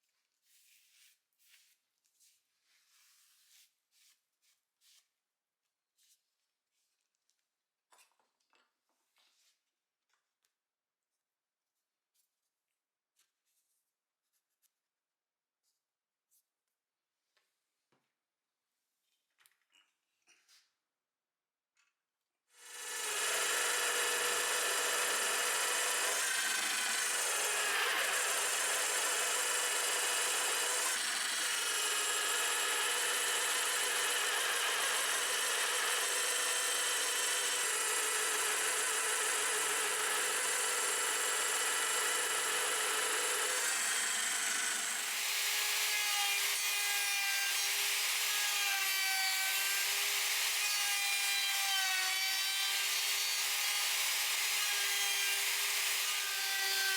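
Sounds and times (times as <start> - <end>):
power tool running on wood: 22.6 - 56.9.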